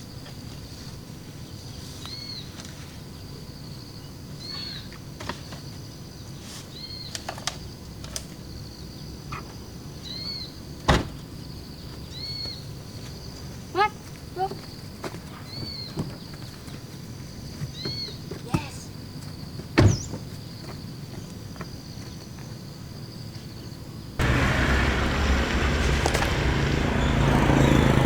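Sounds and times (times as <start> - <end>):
high drone of insects: 15.8 - 28.0.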